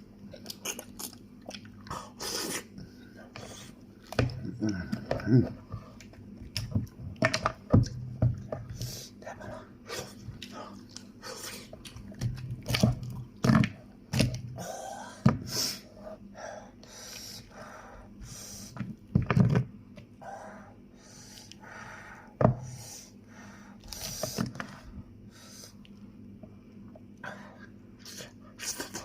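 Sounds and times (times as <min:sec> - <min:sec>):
person chewing crunchy meat: 0:00.2 - 0:09.1, 0:09.8 - 0:13.5.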